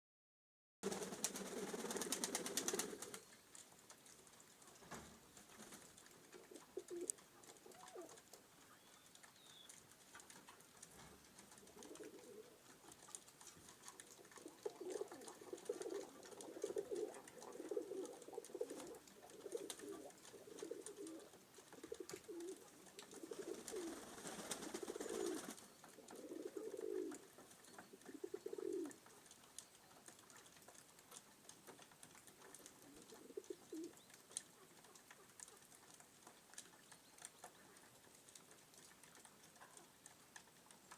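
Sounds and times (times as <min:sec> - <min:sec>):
beaks pecking at feed: 0:00.8 - 0:40.9
pigeons cooing: 0:06.2 - 0:09.0, 0:11.6 - 0:29.3, 0:32.5 - 0:35.9.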